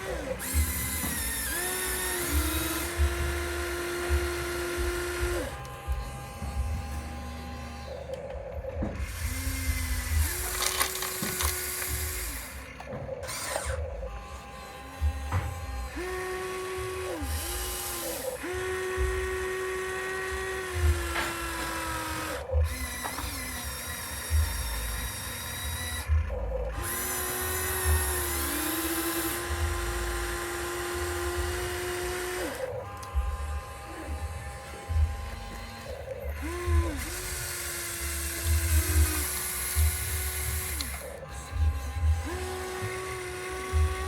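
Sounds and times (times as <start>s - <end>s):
small electric motors whining: 0.0s - 44.0s.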